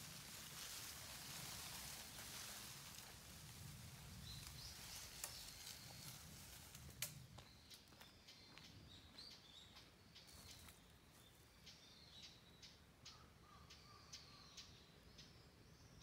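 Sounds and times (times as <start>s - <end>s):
faint high bird chirps: 7.4s - 16.0s.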